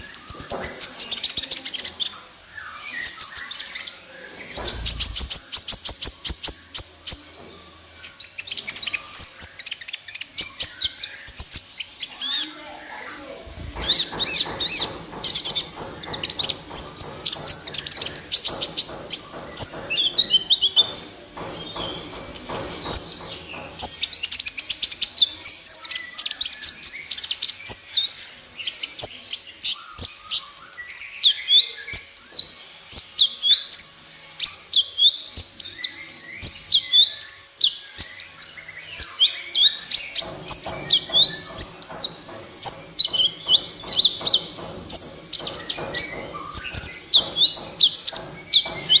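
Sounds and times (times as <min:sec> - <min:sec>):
sunbird chirping: 0:00.0 - 0:07.4.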